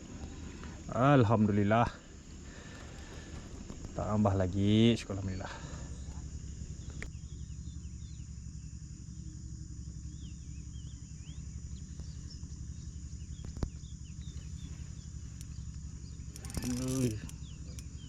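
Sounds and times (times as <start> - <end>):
constant low rumble: 0.0 - 18.0
high insect drone: 0.0 - 18.0
bird chirps: 10.0 - 18.0
sharp click: 16.4 - 17.9.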